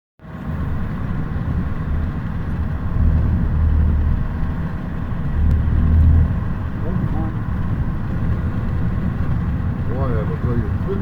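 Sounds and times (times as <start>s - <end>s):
car engine rumble: 0.2s - 11.0s.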